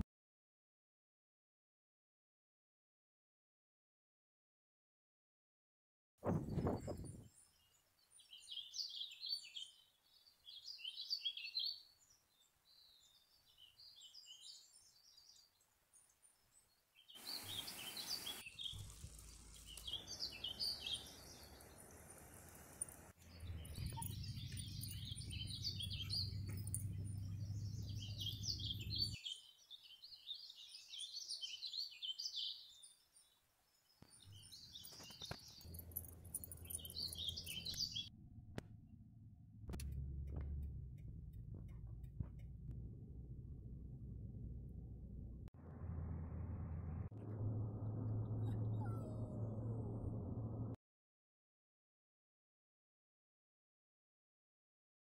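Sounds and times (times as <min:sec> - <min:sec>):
small birds chirping: 0:06.3 - 0:38.1
low rumble: 0:23.2 - 0:29.2, 0:35.7 - 0:50.8.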